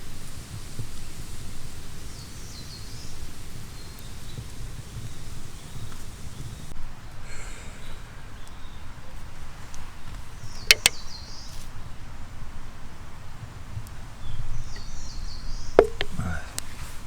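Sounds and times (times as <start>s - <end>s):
sharp knocks: 10.7s - 11.0s, 15.8s - 16.2s.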